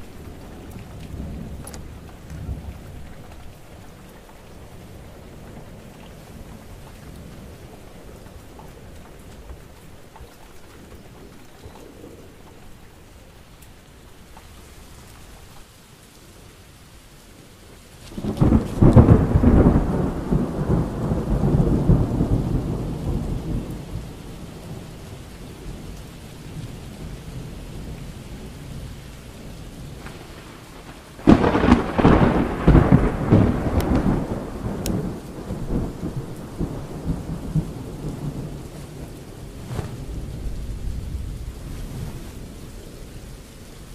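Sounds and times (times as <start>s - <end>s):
steady rain: 0.0s - 43.9s
thunder rolling: 18.0s - 25.8s, 29.8s - 43.4s.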